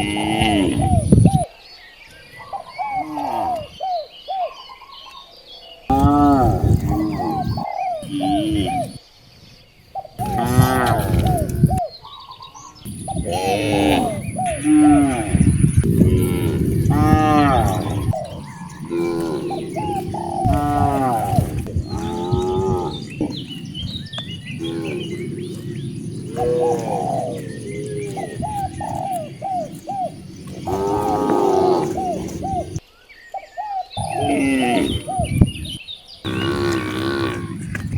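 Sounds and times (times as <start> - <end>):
birds chirping: 0.0 - 37.9
cattle mooing: 13.2 - 23.6, 24.5 - 29.8, 30.4 - 32.8, 36.3 - 37.8.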